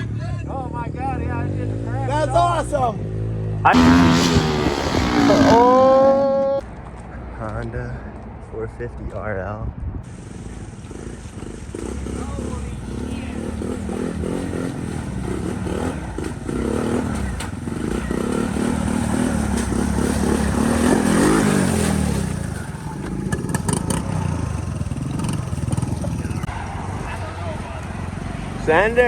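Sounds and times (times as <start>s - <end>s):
dirt bike engine revving: 3.6s - 6.6s, 11.5s - 27.0s.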